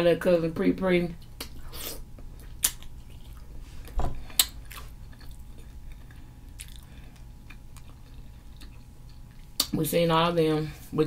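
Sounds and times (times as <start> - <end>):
person chewing food: 1.2 - 9.7.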